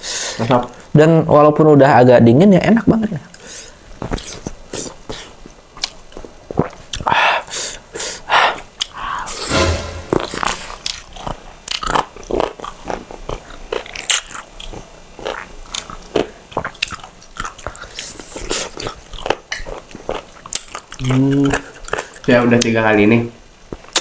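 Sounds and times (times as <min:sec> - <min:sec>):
people chewing: 0:03.3 - 0:09.3, 0:10.6 - 0:22.7
smacking and clicking mouth sounds: 0:04.0 - 0:07.2, 0:16.6 - 0:22.7, 0:23.7 - 0:24.0.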